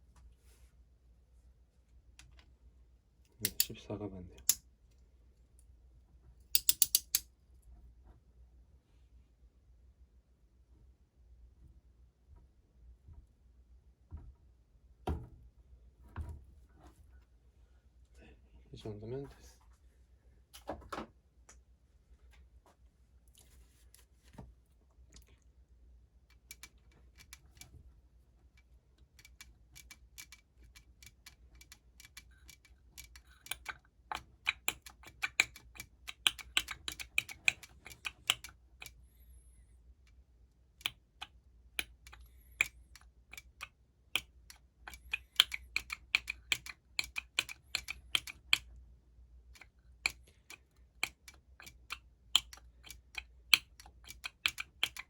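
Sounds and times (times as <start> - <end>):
tools clicking on metal parts: 3.3 - 3.8, 4.4 - 4.6, 6.5 - 7.3.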